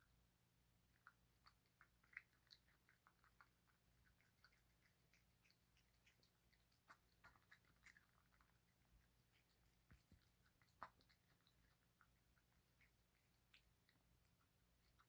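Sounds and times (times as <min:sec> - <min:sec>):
cat chewing: 0:00.7 - 0:15.0.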